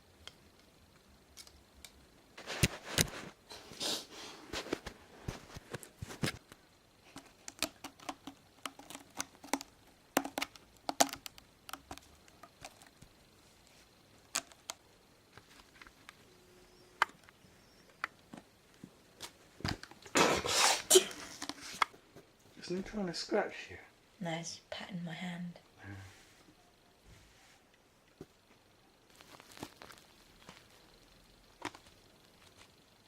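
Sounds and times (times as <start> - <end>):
kitten claws scratching: 7.0 - 13.0.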